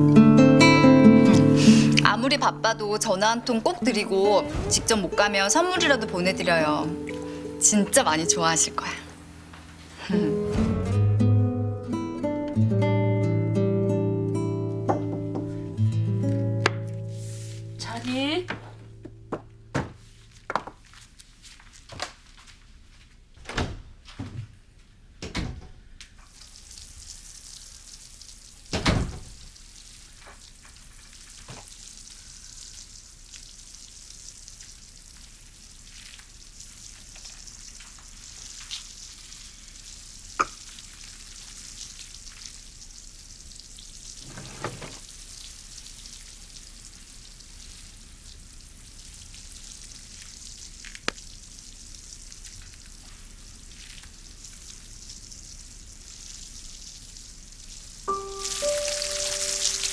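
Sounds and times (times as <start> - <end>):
food sizzling in a pan: 17.0 - 18.4, 26.3 - 59.9.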